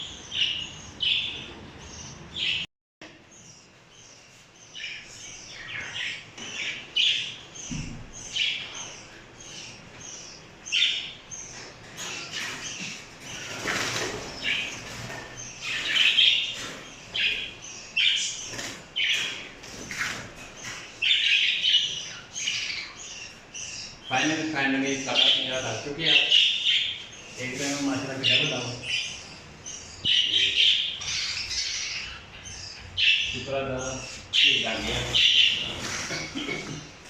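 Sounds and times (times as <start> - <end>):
parrots chirping: 3.3 - 37.0
wings flapping and rustling: 12.0 - 17.4, 18.4 - 21.0.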